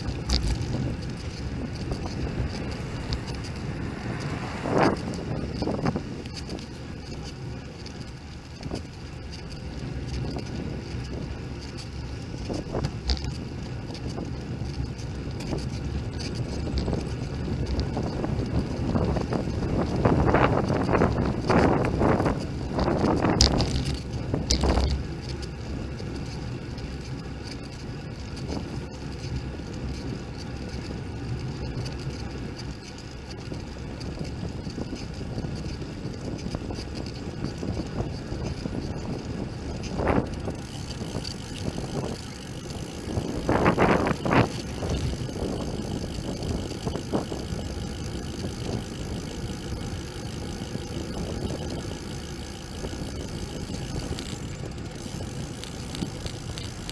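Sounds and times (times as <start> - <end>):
bicycle rattling knocks: 0.0 - 7.4, 8.0 - 56.9
wind and road rumble: 0.0 - 56.9.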